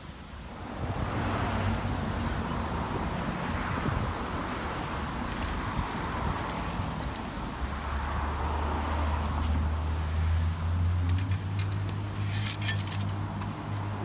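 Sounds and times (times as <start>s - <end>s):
vehicle engine humming: 4.8s - 14.0s.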